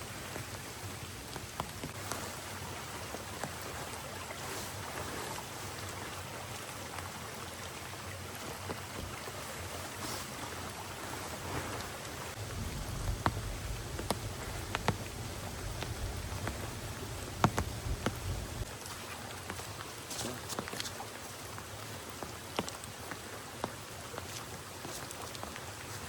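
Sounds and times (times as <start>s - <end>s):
heavy rain falling: 11.5s - 18.8s
drops ticking: 12.4s - 18.7s.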